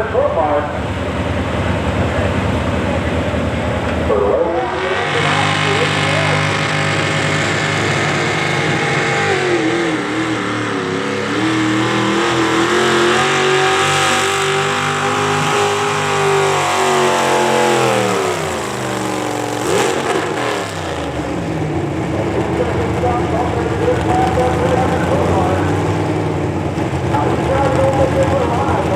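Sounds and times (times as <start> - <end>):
tractor engine revving: 0.0 - 28.9.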